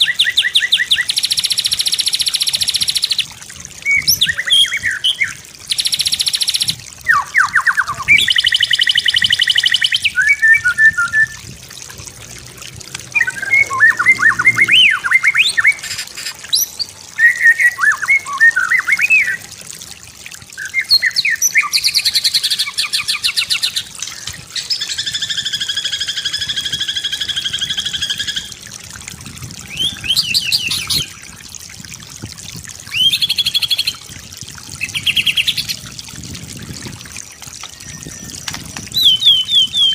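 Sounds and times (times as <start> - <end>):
bird singing whistles and trills: 3.8 - 11.5, 13.1 - 19.4, 20.6 - 28.5, 29.7 - 31.3, 32.9 - 34.0, 37.6 - 39.9.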